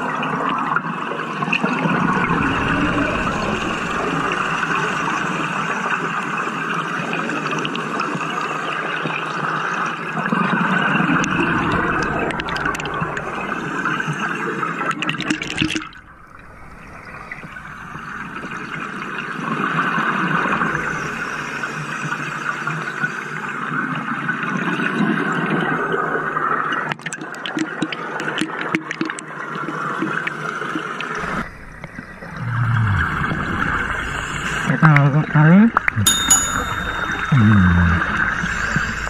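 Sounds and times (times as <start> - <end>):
underwater air bubbles rushing: 1.4 - 6.7, 10.6 - 21.1.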